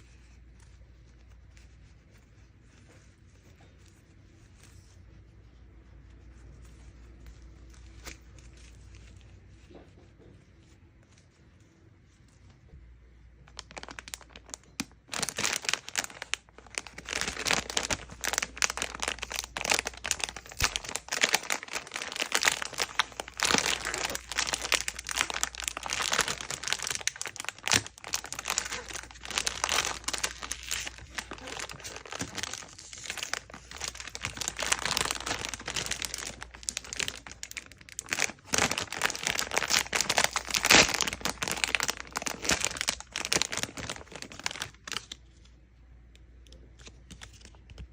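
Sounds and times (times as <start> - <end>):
packaging crinkling and tearing: 6.4 - 9.5, 13.4 - 45.5.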